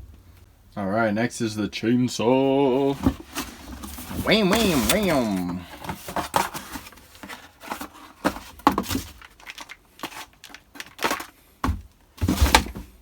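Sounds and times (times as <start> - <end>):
cardboard tearing: 3.1 - 8.3
packaging crinkling: 3.2 - 11.4.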